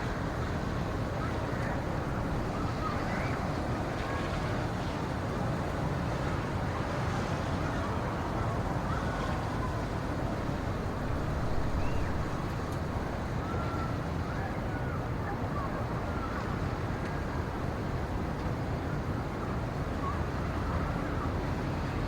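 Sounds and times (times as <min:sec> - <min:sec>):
wind with low rumble: 0:00.0 - 0:22.0
faint whistled chirps: 0:11.7 - 0:12.4, 0:13.4 - 0:14.9.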